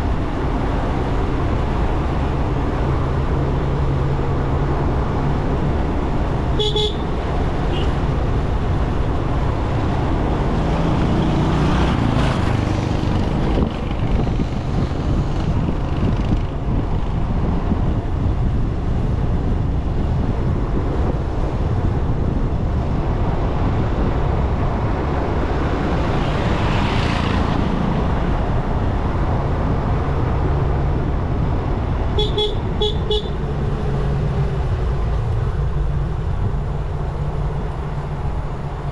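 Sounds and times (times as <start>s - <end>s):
rushing wind noise: 0.0s - 38.9s
horn beeping: 32.2s - 33.4s.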